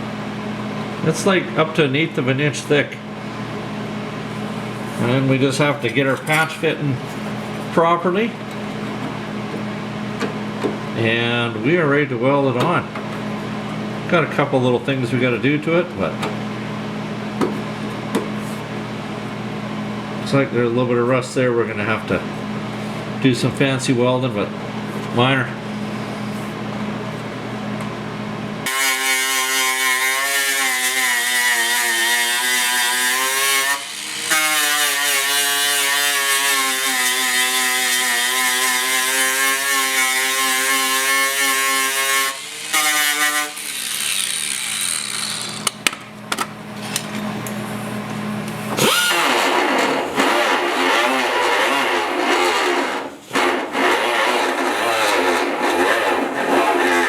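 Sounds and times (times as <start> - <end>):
power grinder grinding filler: 28.6 - 45.8, 48.8 - 57.0.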